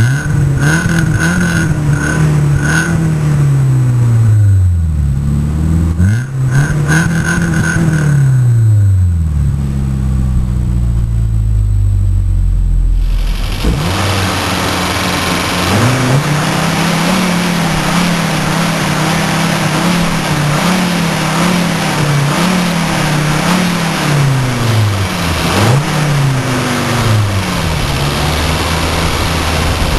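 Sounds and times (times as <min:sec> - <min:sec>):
car engine revving: 0:00.0 - 0:29.9
loud rushing noise: 0:04.1 - 0:29.9.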